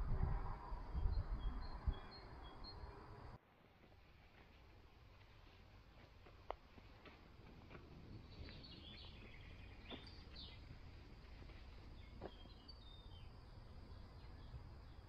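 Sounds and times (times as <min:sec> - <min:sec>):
steady low rumble: 0:00.0 - 0:02.8
songbird chirping: 0:00.6 - 0:03.4, 0:05.9 - 0:15.0.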